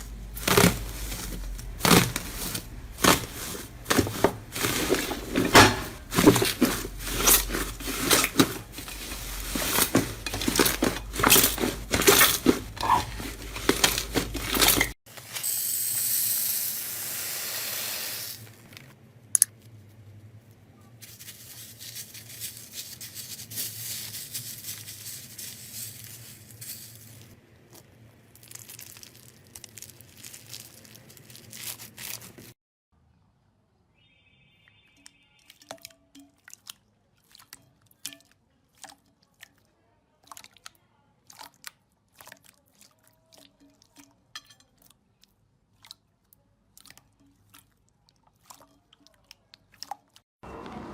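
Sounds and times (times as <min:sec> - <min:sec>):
soft crinkling: 0:00.0 - 0:15.0, 0:18.5 - 0:32.6
slime crackling and popping: 0:27.6 - 0:32.5.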